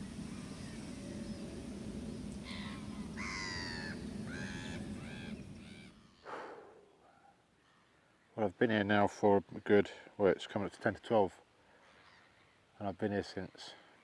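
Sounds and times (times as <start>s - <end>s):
low rumble: 0.0s - 5.8s
bird harsh rasping calls: 2.4s - 7.2s.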